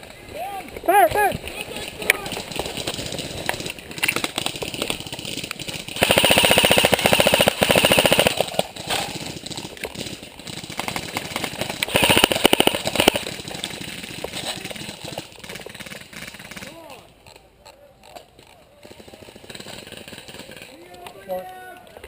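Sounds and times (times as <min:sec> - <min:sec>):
single shots and clicks: 0:01.9 - 0:09.1, 0:10.8 - 0:13.4
airsoft gun firing bursts: 0:02.2 - 0:16.8, 0:18.9 - 0:20.7.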